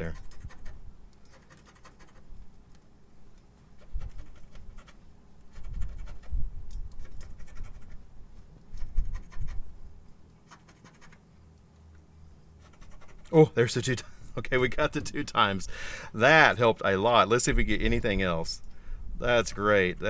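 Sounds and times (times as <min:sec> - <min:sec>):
lottery ticket being scratched: 0:00.0 - 0:02.3, 0:07.0 - 0:08.0, 0:10.4 - 0:11.3, 0:12.6 - 0:13.4.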